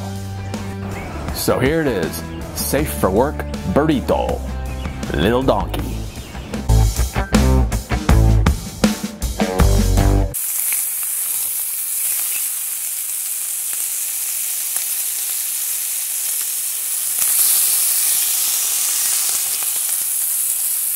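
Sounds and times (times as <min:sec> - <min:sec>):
guitar music: 0:00.0 - 0:10.4
food frying with sizzling hiss: 0:10.4 - 0:20.9.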